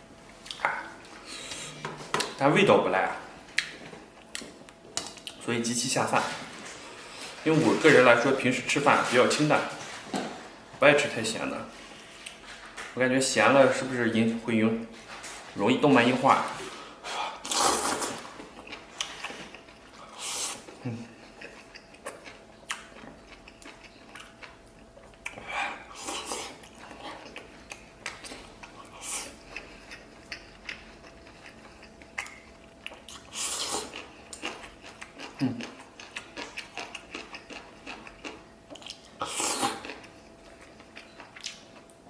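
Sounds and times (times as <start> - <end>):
person chewing food: 0.3 - 2.3, 17.4 - 42.0.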